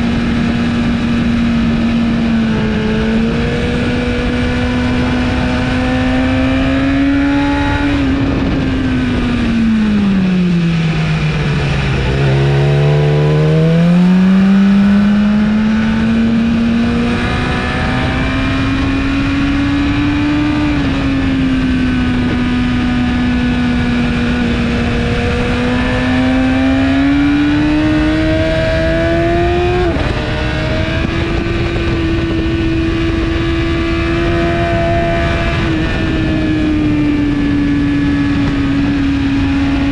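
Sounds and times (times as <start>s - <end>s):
heavy wind noise: 0.0s - 39.9s
motorcycle engine at speed: 0.0s - 39.9s.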